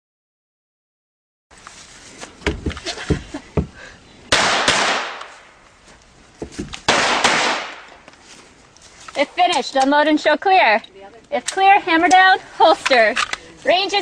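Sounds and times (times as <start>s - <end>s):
pistol shots: 4.3s - 5.4s, 6.9s - 7.9s.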